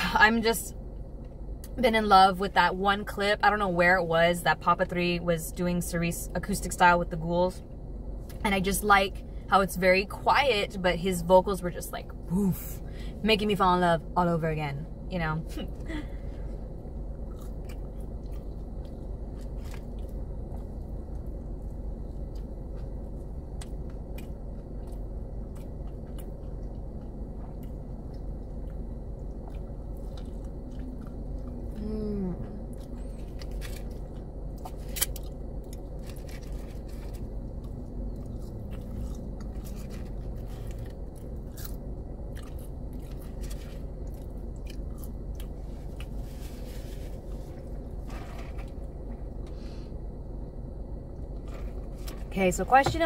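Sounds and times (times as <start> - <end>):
steady low hum: 0.0 - 53.0
person chewing and crunching: 17.0 - 49.6.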